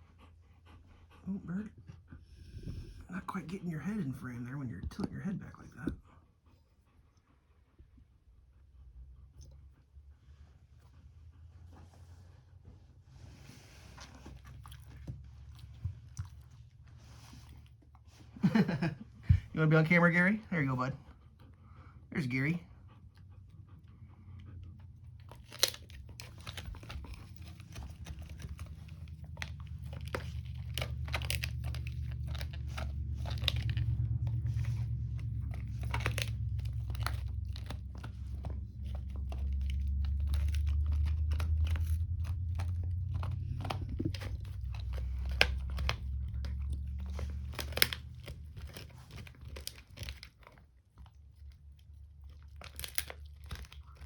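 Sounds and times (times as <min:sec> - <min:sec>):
low rumble: 0:00.0 - 0:54.0
dog gnawing chew: 0:13.2 - 0:54.0.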